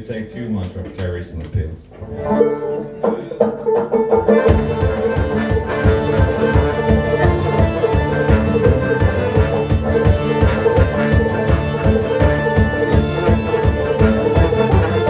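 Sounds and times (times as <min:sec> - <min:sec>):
banjo picking: 0:01.9 - 0:15.0
band playing driving beat: 0:03.5 - 0:15.0.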